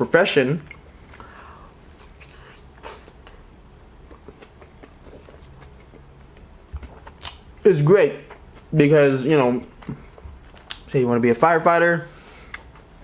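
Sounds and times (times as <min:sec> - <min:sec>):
chewing and biting food: 0:00.7 - 0:07.6
soft mouth clicks: 0:12.5 - 0:12.8.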